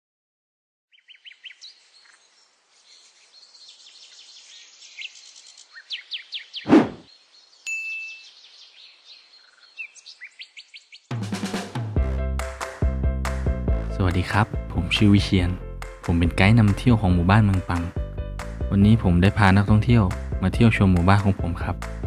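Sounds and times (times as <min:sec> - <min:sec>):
birds chirping and trilling: 0:00.9 - 0:11.2.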